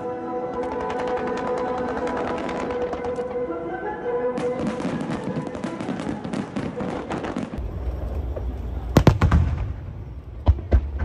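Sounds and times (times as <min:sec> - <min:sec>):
fireworks crackling: 0:00.5 - 0:03.5, 0:04.4 - 0:11.0.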